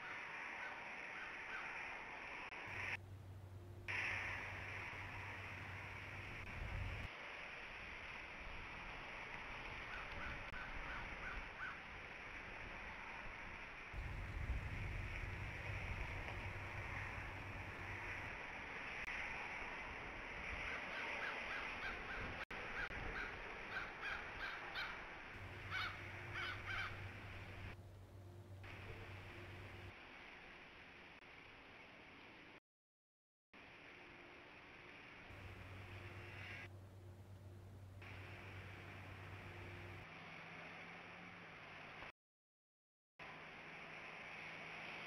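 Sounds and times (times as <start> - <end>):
bird calling: 0.0 - 2.0, 9.9 - 11.9, 20.7 - 29.9
rain hissing: 0.0 - 32.6, 33.6 - 42.1, 43.2 - 45.0
low hum: 1.8 - 10.6, 12.6 - 20.7, 22.1 - 30.1, 33.9 - 42.0.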